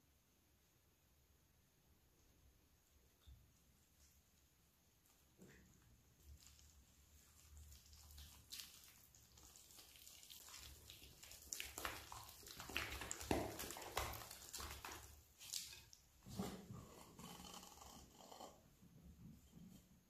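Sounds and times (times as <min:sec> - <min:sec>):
mixing in bowl scraping and knocking: 0:06.2 - 0:20.0.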